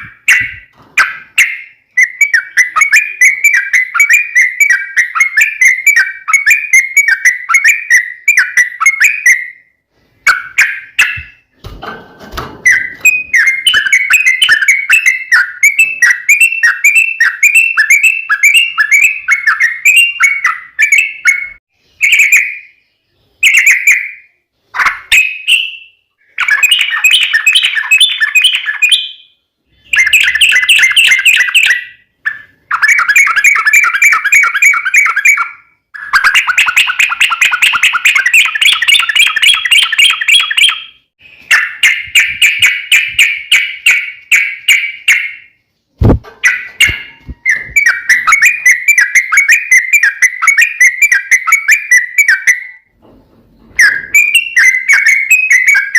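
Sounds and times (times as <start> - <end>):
sharp knock: 46.0 - 47.4.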